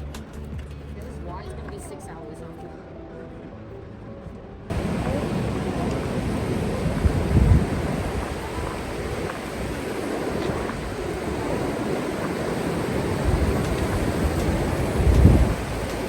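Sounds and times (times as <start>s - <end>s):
wind buffeting microphone: 4.6s - 16.0s
whitewater rushing: 4.7s - 16.0s.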